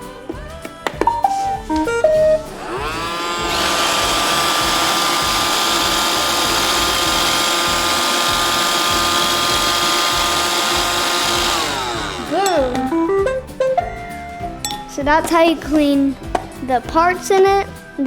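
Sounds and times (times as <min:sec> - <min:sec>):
robot vacuum motors whirring: 0:02.5 - 0:12.9.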